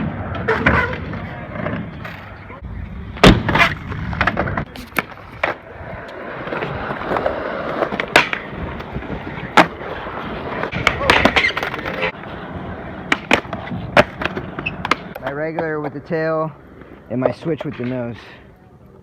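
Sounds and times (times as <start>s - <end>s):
skateboard wheels rumbling: 0.0s - 19.0s
skateboard clacking on ground: 3.2s - 9.8s, 10.5s - 12.2s, 13.0s - 18.2s.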